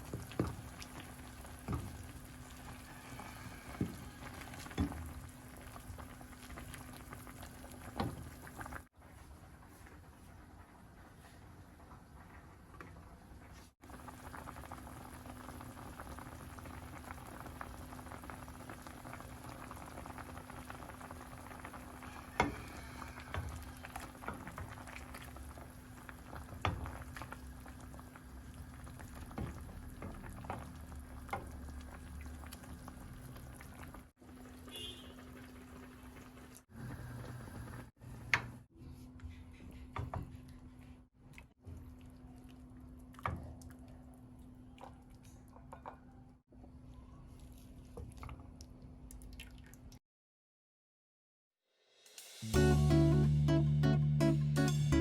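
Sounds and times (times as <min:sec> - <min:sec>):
soup boiling: 0:00.0 - 0:13.2, 0:13.8 - 0:38.4.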